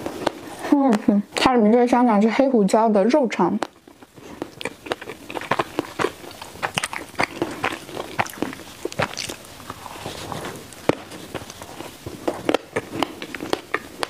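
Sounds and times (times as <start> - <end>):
wet mouth clicks: 3.6 - 9.4
chewing bread roll: 3.6 - 14.0
biting into bread roll: 3.7 - 14.0.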